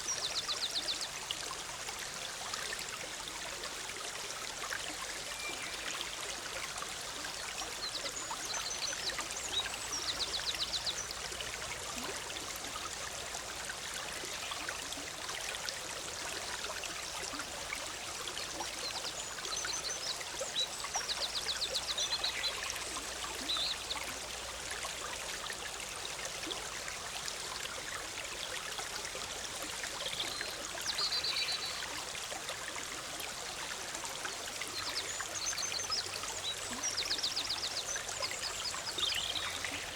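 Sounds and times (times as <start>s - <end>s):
stream bubbling over rocks: 0.0s - 39.9s
small birds calling and trilling: 7.8s - 11.2s, 34.8s - 39.9s.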